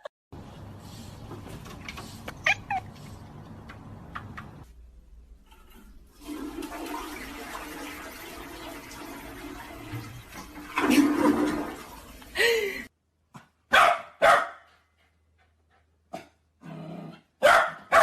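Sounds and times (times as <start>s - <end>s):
cat meowing: 2.4s - 2.9s.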